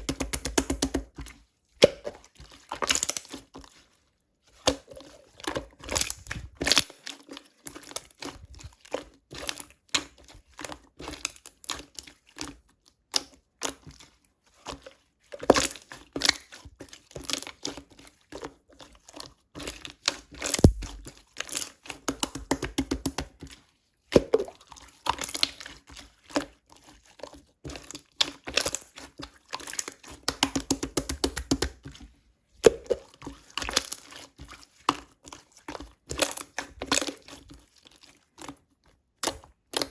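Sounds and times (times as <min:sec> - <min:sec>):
slime squished by hand: 0:20.6 - 0:21.2.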